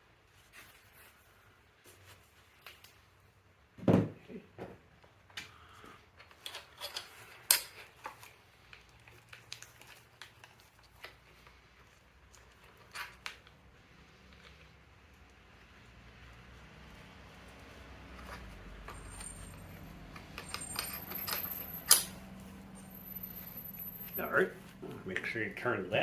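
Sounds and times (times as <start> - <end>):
metal tools clinking: 18.1 - 25.4.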